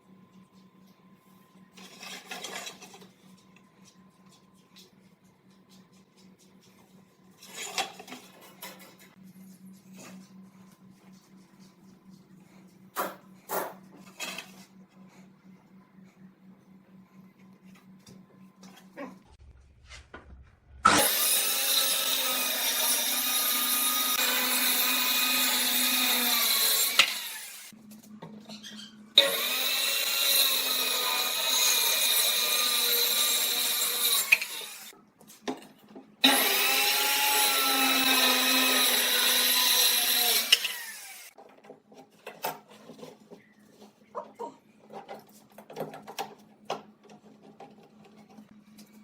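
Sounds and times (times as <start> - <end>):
electric power tool cutting wood: 20.9 - 27.7, 29.2 - 34.9, 36.2 - 41.4.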